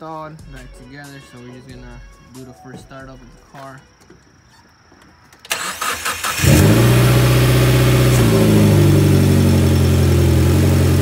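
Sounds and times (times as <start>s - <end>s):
car engine cranking and idling: 5.4s - 11.0s.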